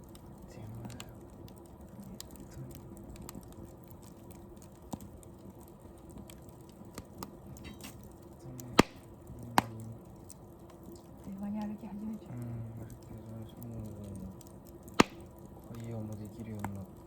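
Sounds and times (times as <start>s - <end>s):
wood fire crackling: 0.0s - 17.0s
loud sharp fire pops: 2.2s - 10.9s, 13.6s - 17.0s.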